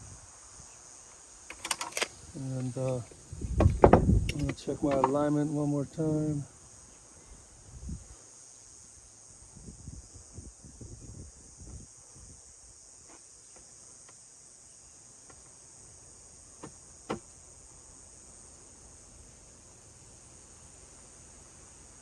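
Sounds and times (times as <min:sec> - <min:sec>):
high-pitched hiss: 0:00.0 - 0:22.0
handling bumps and rustles: 0:01.5 - 0:05.4.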